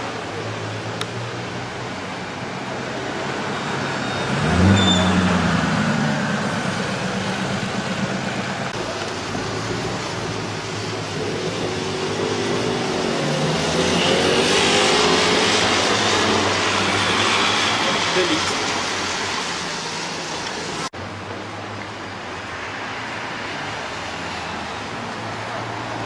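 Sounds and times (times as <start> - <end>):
street noise: 0.0 - 26.0
car engine revving: 4.2 - 20.1.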